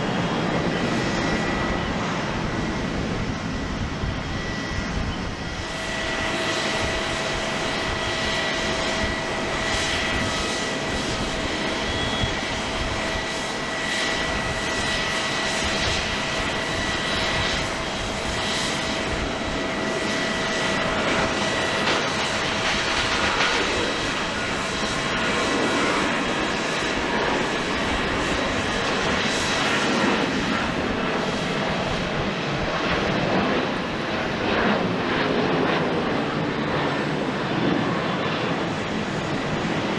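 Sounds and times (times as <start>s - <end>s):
jet engines rushing: 0.0s - 39.9s
faint high whine: 0.3s - 31.4s.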